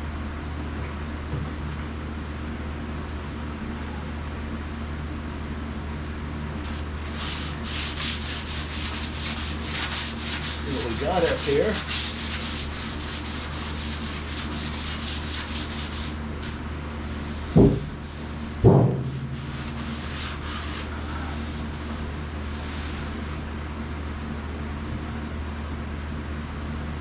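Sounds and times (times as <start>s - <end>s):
hand sanding metal panel: 6.7s - 23.4s
loud thumps: 17.4s - 20.4s.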